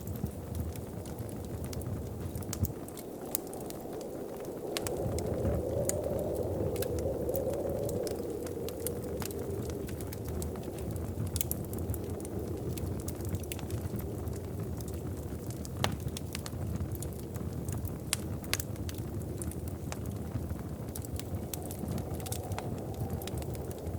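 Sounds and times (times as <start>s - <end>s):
fire pops and snaps: 0.0s - 23.9s
low rushing of fire: 0.0s - 23.9s.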